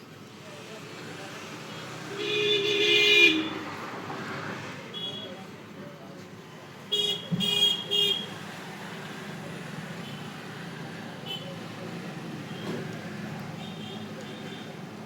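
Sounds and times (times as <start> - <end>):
traffic noise: 0.0 - 15.0
vehicle horn honking: 2.2 - 3.6, 6.9 - 8.3.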